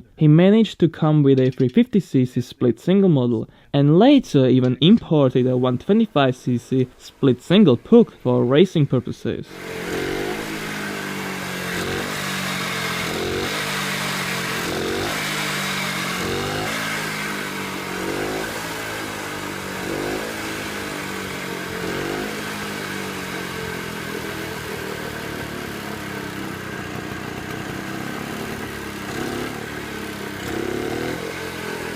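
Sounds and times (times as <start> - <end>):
two-stroke motorcycle engine revving: 9.5 - 31.9.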